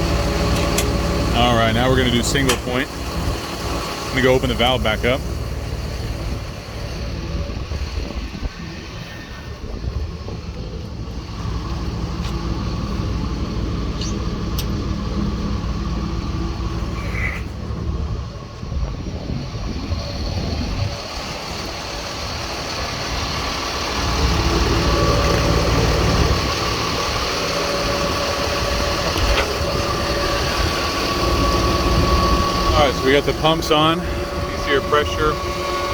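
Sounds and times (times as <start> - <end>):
fuel pump whine: 0.0 - 35.9
truck engine running: 0.0 - 35.9.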